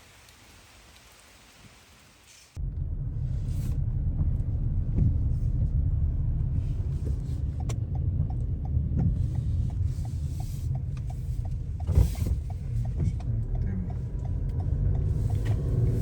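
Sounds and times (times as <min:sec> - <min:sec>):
car driving rumble from cabin: 0:02.6 - 0:16.0
light regular ticking: 0:03.9 - 0:16.0.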